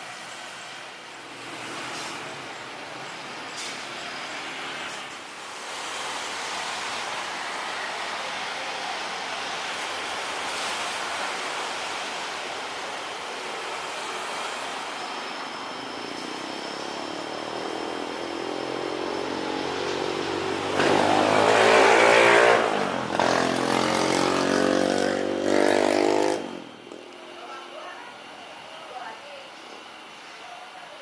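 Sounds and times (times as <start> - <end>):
jet airliner engine noise: 0.0 - 25.3, 26.3 - 31.0
rasping drone of steady tones: 11.9 - 31.0.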